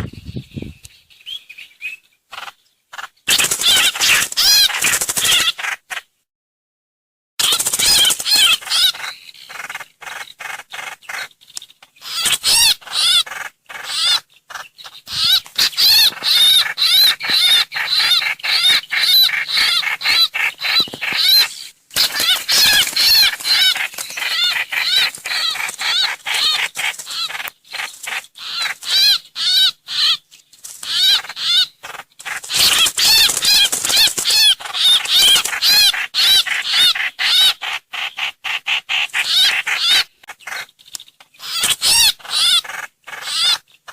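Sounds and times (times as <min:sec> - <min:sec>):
bird chattering whistled call: 0:14.8 - 0:27.4.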